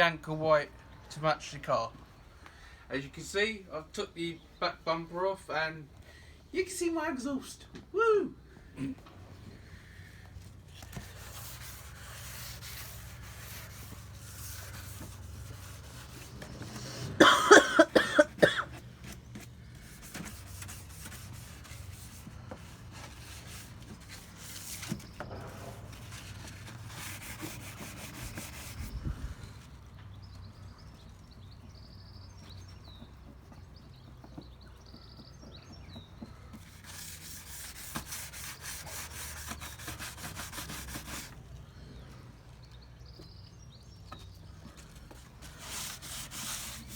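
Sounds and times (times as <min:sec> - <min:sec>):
sandpaper scraping strokes: 0:09.8 - 0:17.2, 0:19.0 - 0:29.6, 0:36.2 - 0:41.4, 0:44.6 - 0:46.9.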